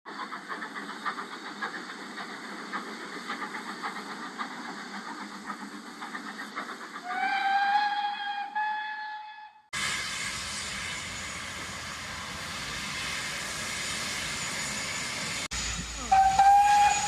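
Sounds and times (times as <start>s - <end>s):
steam locomotive hissing: 0.1s - 8.8s, 9.8s - 17.0s
steam whistle: 7.0s - 9.6s, 16.0s - 17.0s.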